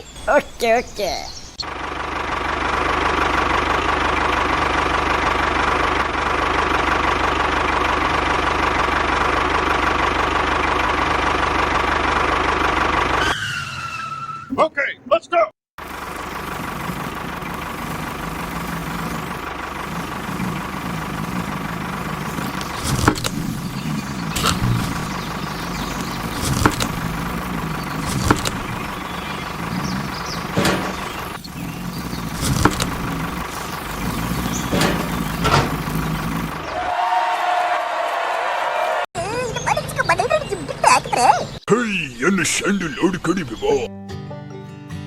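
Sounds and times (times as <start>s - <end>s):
mini tractor motor running: 1.6s - 13.3s, 15.8s - 36.9s.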